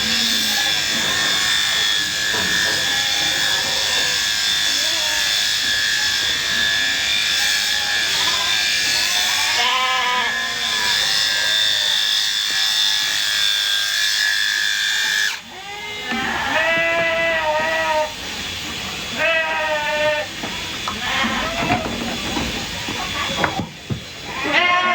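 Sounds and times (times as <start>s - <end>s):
electric shears whining: 0.0s - 24.9s
sheep bleating: 20.9s - 21.9s, 24.3s - 24.9s.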